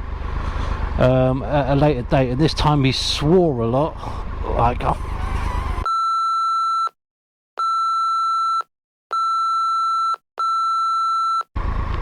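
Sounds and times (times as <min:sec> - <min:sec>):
censorship beeps: 0:07.6 - 0:11.5.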